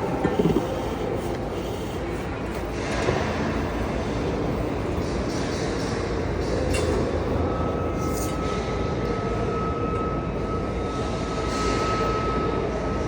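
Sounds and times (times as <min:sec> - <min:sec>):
machine rumble: 0:00.0 - 0:13.0.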